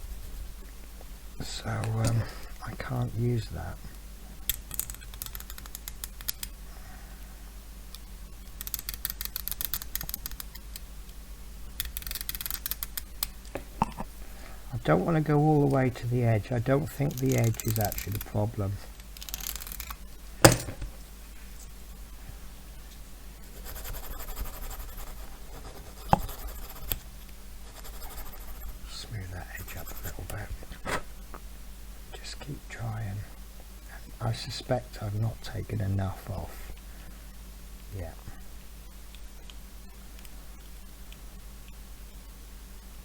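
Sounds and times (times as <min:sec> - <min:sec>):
hand tool scratchy clicking: 0:17.1 - 0:18.4.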